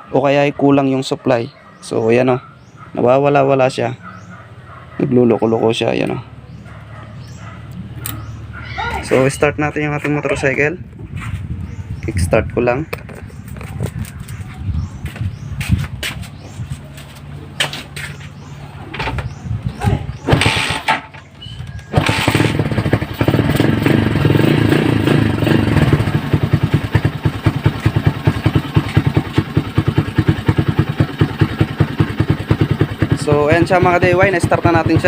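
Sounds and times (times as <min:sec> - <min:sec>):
motorcycle engine idling: 0:16.3 - 0:35.0
motorcycle kickstarter strokes: 0:20.2 - 0:23.7.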